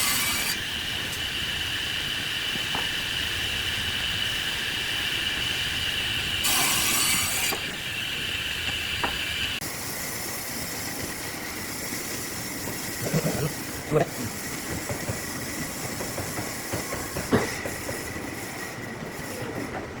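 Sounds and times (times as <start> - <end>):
wood lathe turning tool squealing: 0.0 - 1.2.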